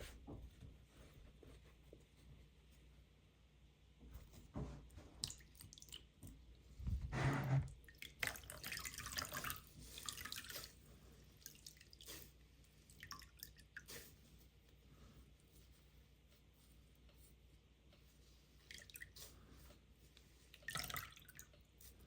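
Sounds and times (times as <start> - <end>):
water dripping: 5.2 - 6.6, 7.8 - 10.5, 12.8 - 13.9, 20.5 - 21.7.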